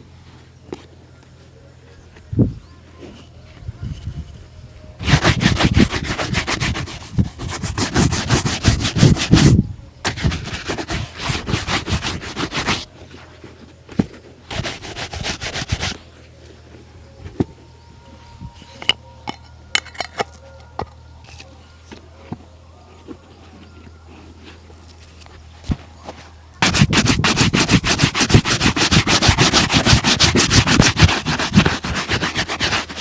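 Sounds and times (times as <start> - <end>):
shoe brush scrubbing: 5.0 - 12.9, 14.5 - 16.0, 26.6 - 33.0.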